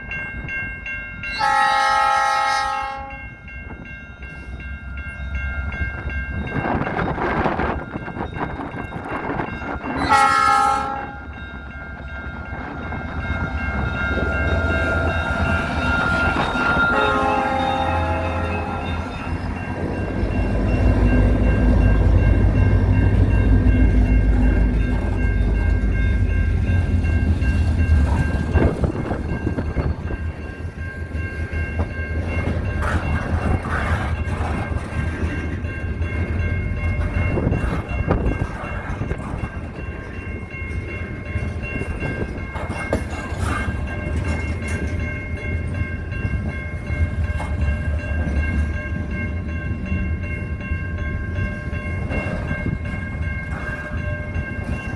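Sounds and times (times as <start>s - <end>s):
train horn chord: 1.4s - 3.2s, 10.0s - 11.4s, 16.4s - 19.0s
wind rumble on microphone: 5.7s - 10.1s, 19.3s - 31.5s, 32.4s - 40.8s.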